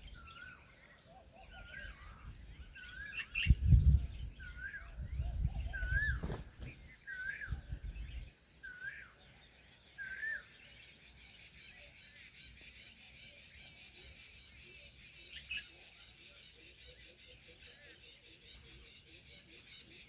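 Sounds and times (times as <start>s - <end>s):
low rumble on microphone: 3.5s - 6.2s.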